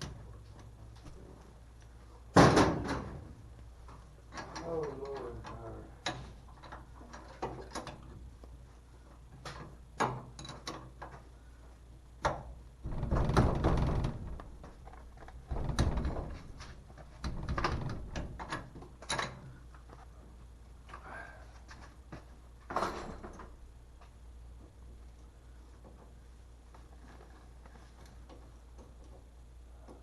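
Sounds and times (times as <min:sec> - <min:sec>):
scraping rattles: 0:12.8 - 0:19.4.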